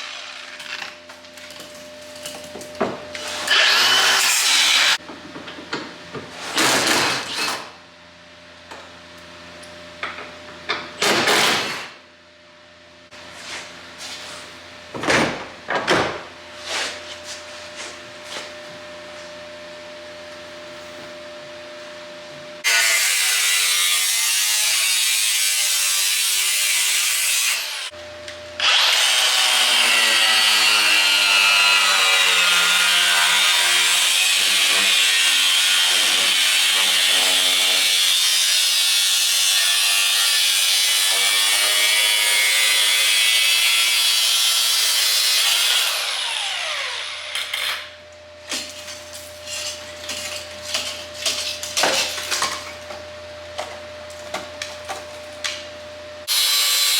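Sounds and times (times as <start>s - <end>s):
rotary power tool cutting metal: 0.0s - 1.0s, 3.2s - 5.0s, 22.6s - 27.9s, 28.6s - 48.0s, 56.3s - 56.9s.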